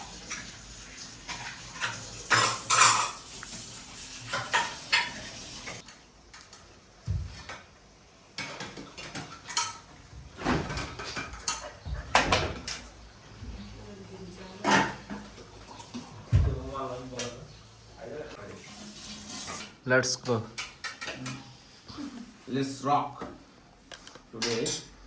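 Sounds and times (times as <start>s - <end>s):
plates and cutlery clinking: 1.2s - 6.5s, 8.4s - 13.0s, 14.5s - 17.4s, 20.3s - 21.7s, 24.4s - 25.0s.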